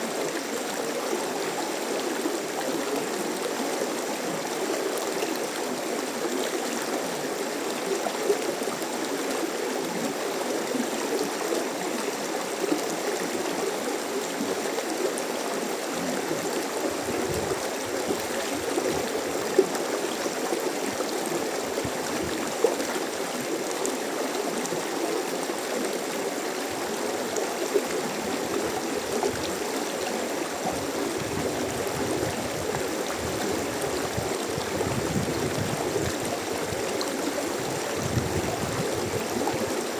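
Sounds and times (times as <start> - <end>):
stream flowing over rocks: 0.0 - 39.9
water splashes: 4.2 - 39.9.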